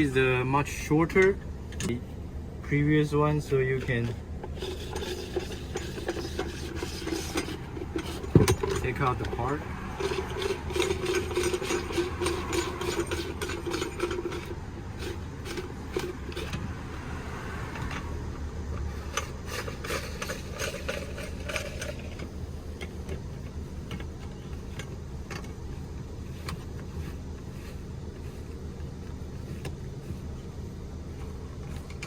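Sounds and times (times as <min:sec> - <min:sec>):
low steady hum: 0:00.0 - 0:32.0
frame parts clicking and knocking: 0:03.8 - 0:16.7, 0:18.8 - 0:25.6.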